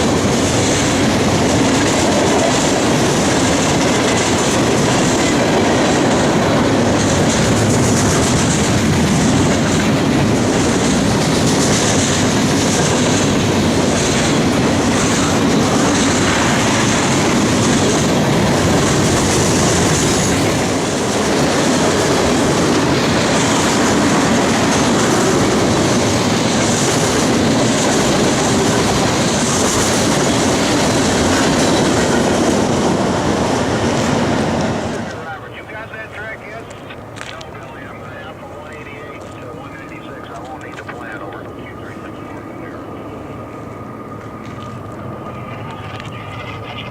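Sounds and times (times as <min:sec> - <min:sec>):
train wheels clacking over rails: 0:00.0 - 0:35.2.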